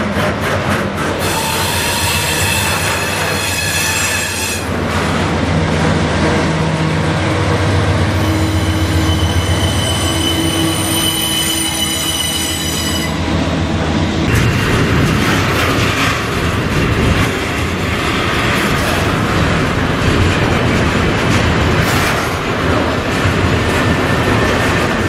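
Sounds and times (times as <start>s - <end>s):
diesel locomotive engine drone: 0.0s - 25.0s
rumble of wheels on rail: 0.0s - 25.0s
high wheel squeal: 1.2s - 4.7s, 8.2s - 13.2s.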